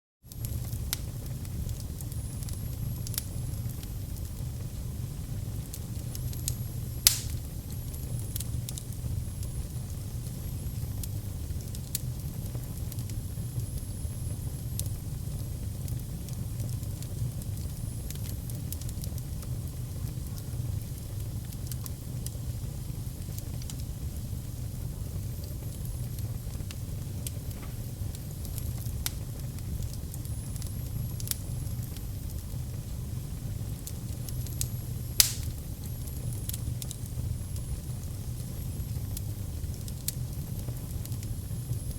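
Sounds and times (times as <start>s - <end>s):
fire crackling: 0.3s - 41.9s
fire flames rumbling: 0.3s - 41.9s
loud wood pop: 35.2s - 35.5s.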